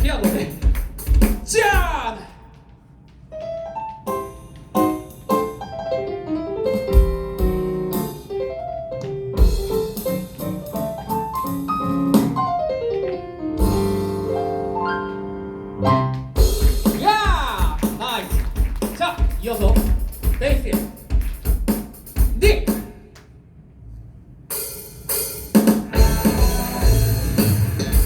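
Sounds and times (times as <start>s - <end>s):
piano solo: 3.3s - 16.4s, 26.0s - 28.0s.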